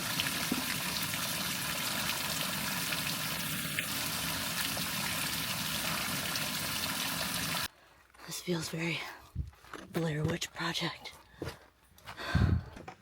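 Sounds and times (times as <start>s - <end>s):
water running and trickling: 0.0s - 7.7s.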